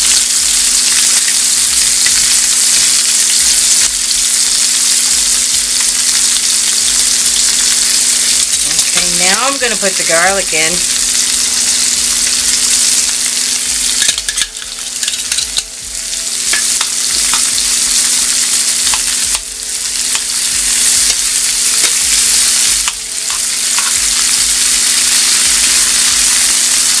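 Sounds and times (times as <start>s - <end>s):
shrimp sizzling in a frying pan: 0.0s - 27.0s
metal tongs clicking on pan: 14.0s - 15.7s, 22.8s - 24.2s.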